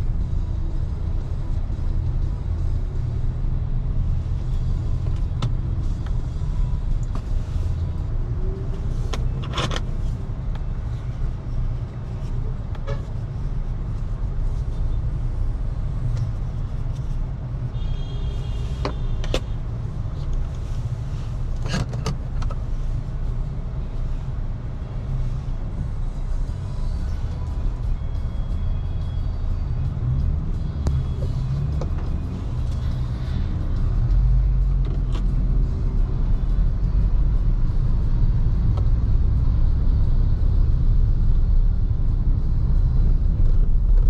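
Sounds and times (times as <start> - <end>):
tyre and road noise: 0.0 - 44.0.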